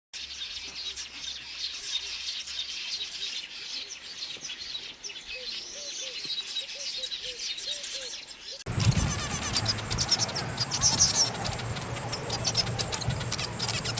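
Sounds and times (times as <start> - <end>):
small birds chirping: 0.2 - 13.9
short low arched bird calls: 8.7 - 13.9.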